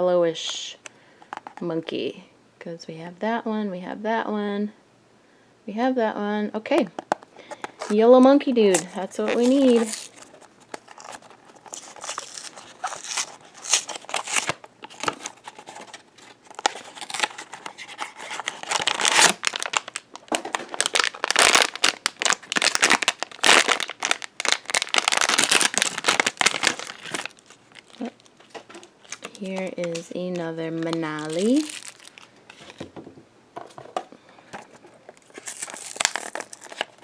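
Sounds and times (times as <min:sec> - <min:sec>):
packaging crinkling and tearing: 0:07.1 - 0:08.0, 0:08.6 - 0:32.8, 0:34.5 - 0:37.0.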